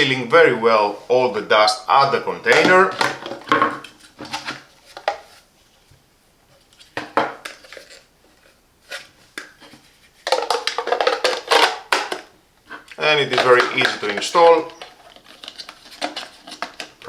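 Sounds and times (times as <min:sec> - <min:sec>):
plastic parts knocking and clicking: 0:02.4 - 0:05.3, 0:09.4 - 0:17.0.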